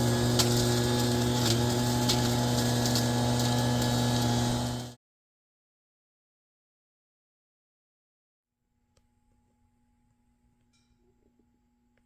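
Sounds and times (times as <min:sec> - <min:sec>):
electric motor humming: 0:00.0 - 0:05.0.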